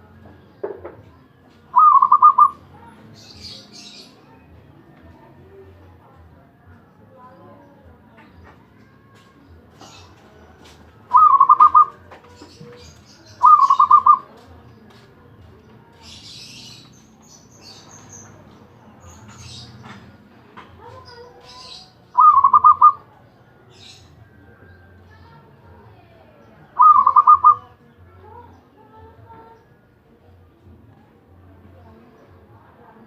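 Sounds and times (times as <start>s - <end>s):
dove cooing trilled notes: 1.7s - 2.6s, 11.1s - 12.0s, 13.3s - 14.3s, 22.1s - 23.1s, 26.7s - 27.8s.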